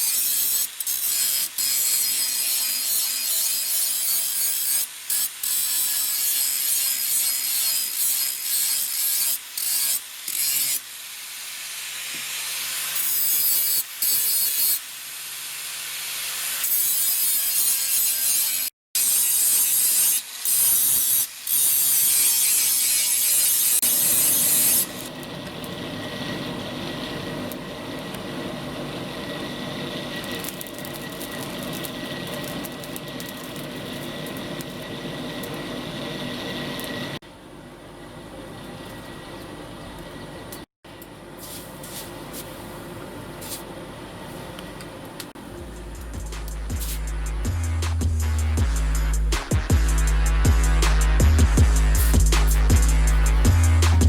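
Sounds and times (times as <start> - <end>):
file rasping on steel: 0.0 - 10.8, 12.2 - 14.8, 16.1 - 25.1
low hum: 45.4 - 54.0.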